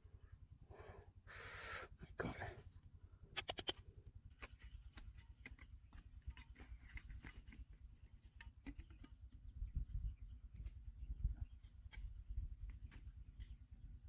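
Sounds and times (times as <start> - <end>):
small clicks and scrapes of stones: 3.4 - 9.3.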